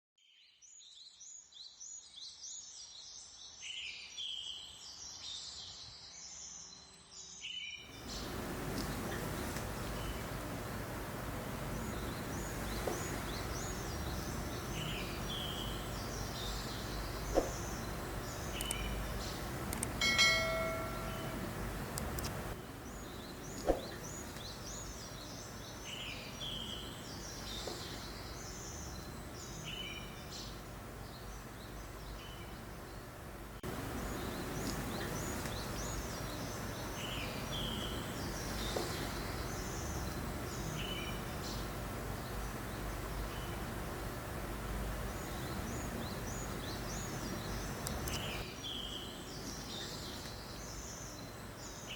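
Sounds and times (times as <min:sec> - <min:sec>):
small songbirds chirping: 0:00.2 - 0:51.9
breeze rushing: 0:07.9 - 0:29.5
clear pitched bird call: 0:11.5 - 0:30.6
sharp clicks: 0:18.5 - 0:18.9, 0:19.7 - 0:20.0, 0:21.9 - 0:22.5, 0:47.8 - 0:48.4.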